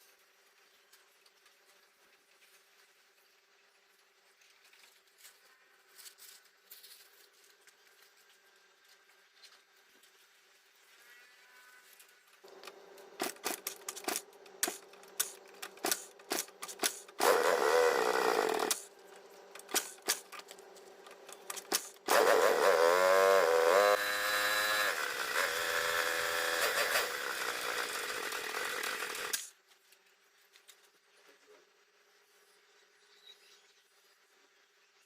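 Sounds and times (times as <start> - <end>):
motorcycle engine revving: 12.5 - 29.5.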